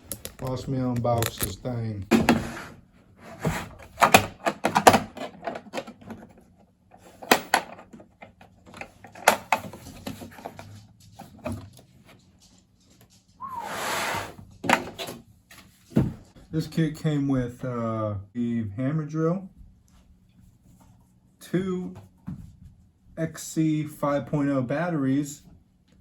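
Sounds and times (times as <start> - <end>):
noisy cardboard scrape: 2.1 - 4.0, 13.4 - 14.5.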